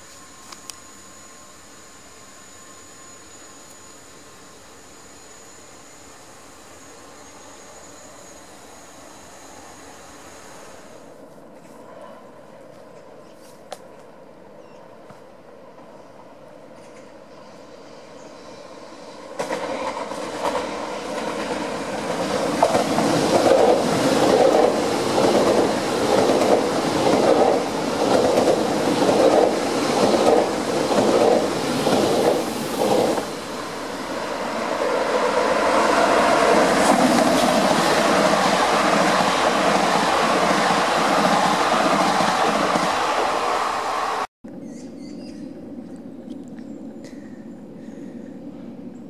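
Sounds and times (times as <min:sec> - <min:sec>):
train running noise: 0:15.0 - 0:44.3
train wheels clicking over rail joints: 0:19.4 - 0:33.4.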